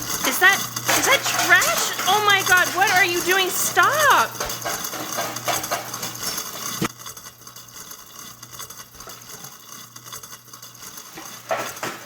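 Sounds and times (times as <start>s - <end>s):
trash rattling in a sink: 0.0s - 6.9s, 10.9s - 12.0s.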